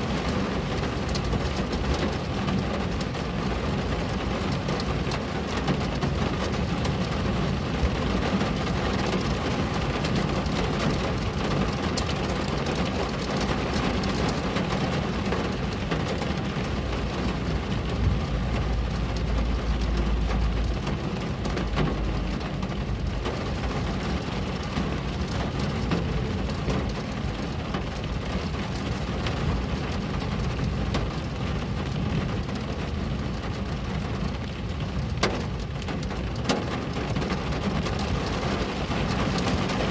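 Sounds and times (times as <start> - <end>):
rain falling on a window: 0.0 - 39.9
deep low rumble: 16.4 - 28.2.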